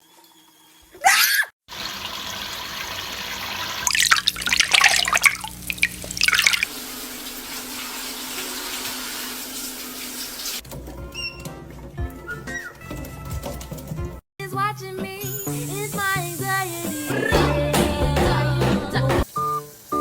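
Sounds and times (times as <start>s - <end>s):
tap water running: 1.7s - 11.0s, 15.5s - 20.0s
parrot splashing in water: 1.8s - 10.6s.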